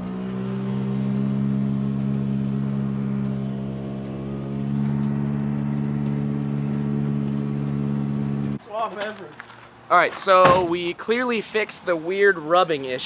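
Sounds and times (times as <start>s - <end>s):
car engine running: 0.0s - 8.6s.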